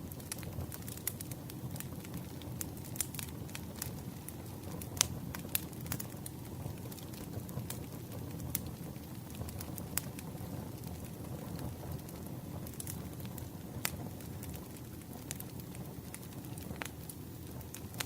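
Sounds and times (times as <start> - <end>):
campfire pops and snaps: 0.0 - 18.0
rumble of burning flames: 0.0 - 18.0.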